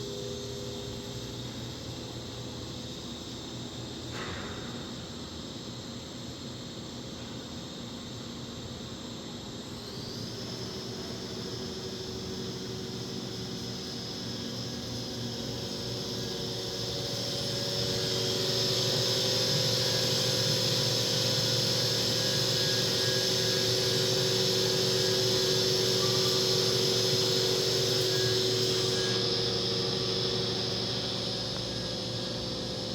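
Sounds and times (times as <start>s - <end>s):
machining center running: 10.2s - 32.9s.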